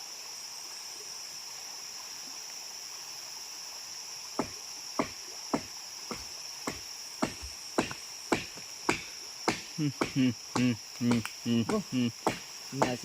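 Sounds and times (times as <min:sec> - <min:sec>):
crickets and insects droning: 0:00.0 - 0:13.0
sharp evenly spaced knocks: 0:04.4 - 0:13.0.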